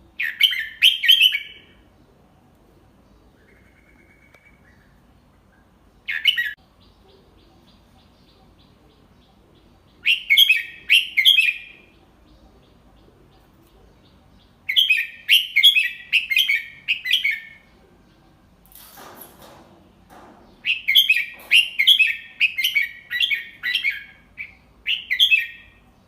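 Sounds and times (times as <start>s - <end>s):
bird singing: 0.0s - 2.2s, 2.9s - 18.7s, 19.9s - 26.0s.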